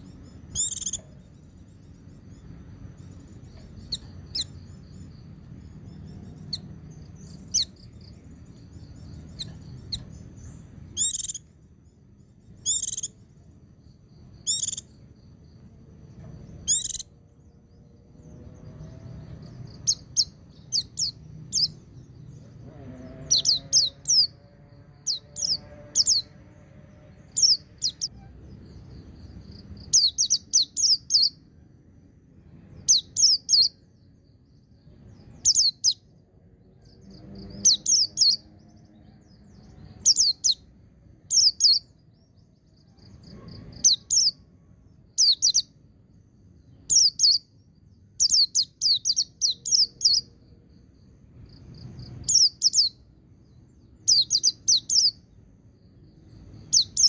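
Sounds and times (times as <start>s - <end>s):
bird singing high quick notes: 0.0s - 1.1s, 10.9s - 11.5s, 16.6s - 17.1s.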